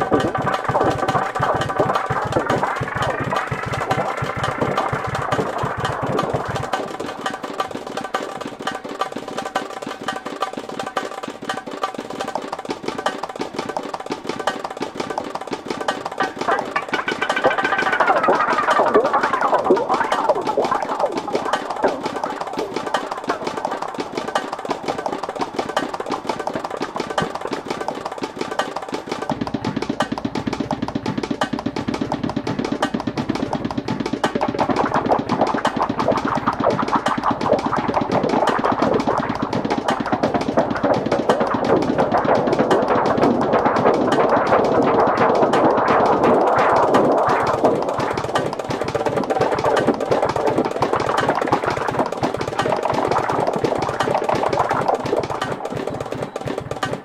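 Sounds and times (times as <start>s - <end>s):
deep bass layer: 0.0s - 7.5s, 29.3s - 55.6s
rapid clicking electronic beat: 0.0s - 57.0s
shifting synth tones: 16.5s - 23.7s.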